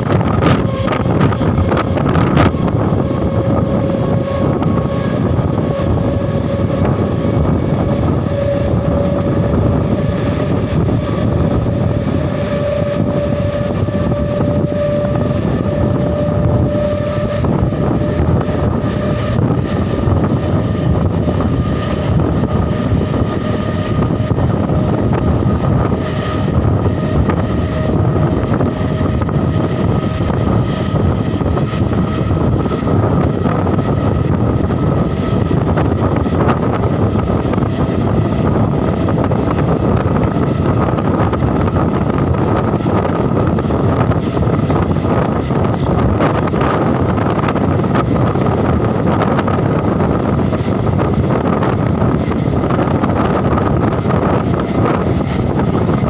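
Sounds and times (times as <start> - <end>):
electric train running: 0.0 - 56.0.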